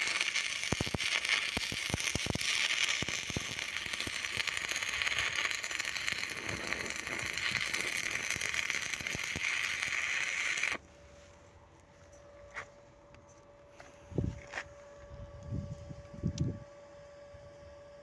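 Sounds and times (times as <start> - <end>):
welding arc crackling: 0.0 - 10.8.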